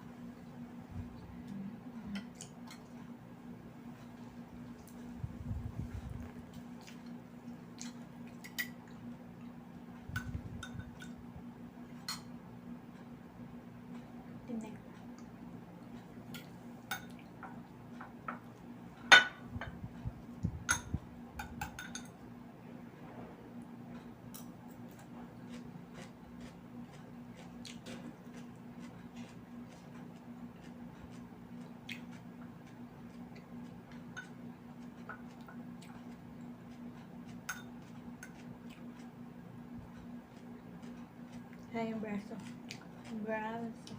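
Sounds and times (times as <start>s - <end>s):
steady low hum: 0.0s - 43.9s
tableware clinking: 21.5s - 22.2s.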